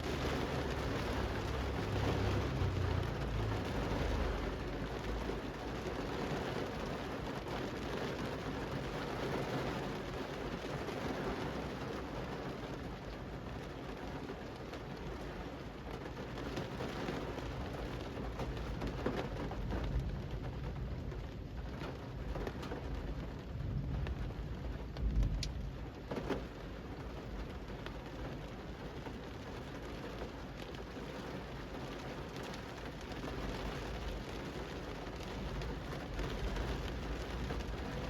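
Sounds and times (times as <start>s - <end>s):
low rumble: 0.0s - 5.3s, 19.4s - 26.0s
rain on pavement: 0.0s - 38.0s.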